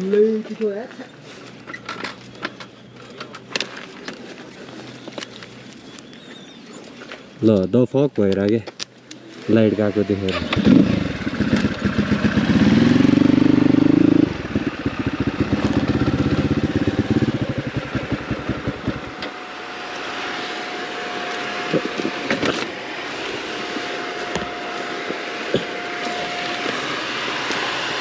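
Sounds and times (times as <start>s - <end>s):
dirt bike engine: 9.5s - 28.0s.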